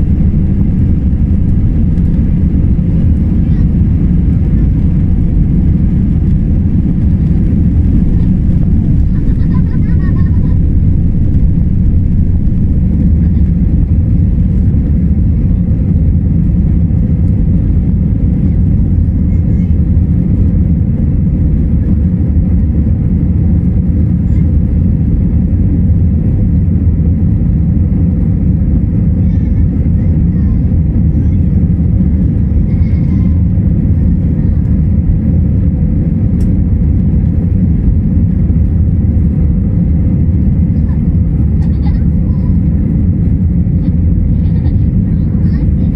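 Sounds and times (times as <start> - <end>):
jet engine cabin rumble: 0.0 - 45.9.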